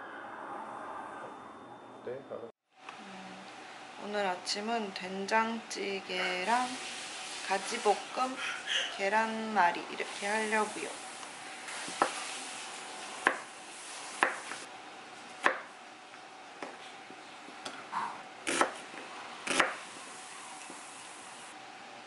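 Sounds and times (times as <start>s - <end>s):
knife chopping on wooden board: 13.2s - 13.5s, 14.2s - 14.6s, 15.4s - 15.7s, 18.5s - 18.9s, 19.5s - 19.8s.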